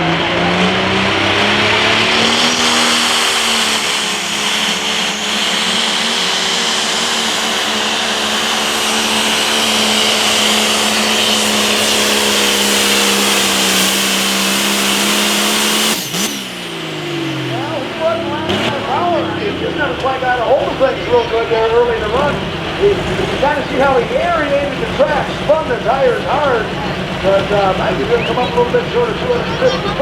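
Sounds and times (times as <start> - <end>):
diesel engine running under load: 0.0 - 30.0
high turbo whine: 0.0 - 30.0.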